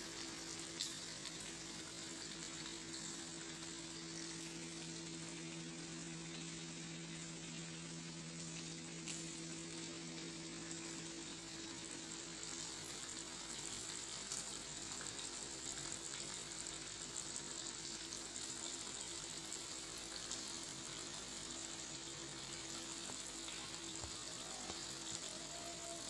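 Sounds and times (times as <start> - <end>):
steady low hum: 0.0 - 14.1
food sizzling in a wok: 0.0 - 26.0.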